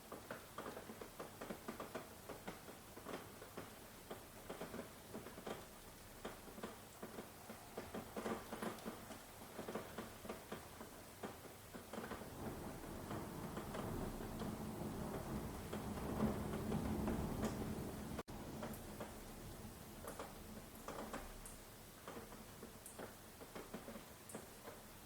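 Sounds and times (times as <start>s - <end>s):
faint rain hiss: 0.0s - 25.0s
rain drops tapping on hard surface: 0.0s - 25.0s.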